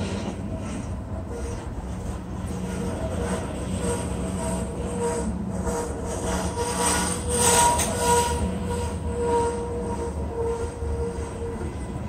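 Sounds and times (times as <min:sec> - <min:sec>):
train wheels rumbling on rail: 0:00.0 - 0:12.0
whining tone: 0:03.4 - 0:12.0.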